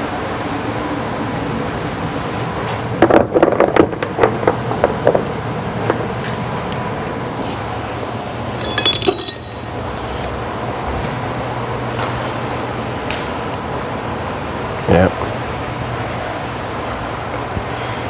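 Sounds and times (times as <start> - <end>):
low shop hum: 0.0 - 18.0
small metal parts clinking: 8.6 - 10.0.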